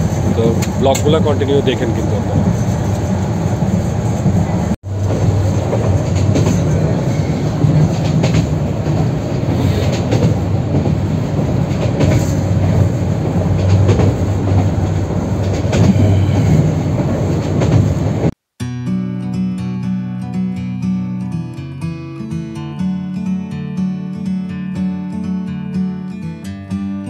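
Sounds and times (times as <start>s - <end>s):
wheels clicking over track: 0.0s - 3.2s, 4.0s - 18.3s
train rumbling on rails: 0.0s - 18.4s.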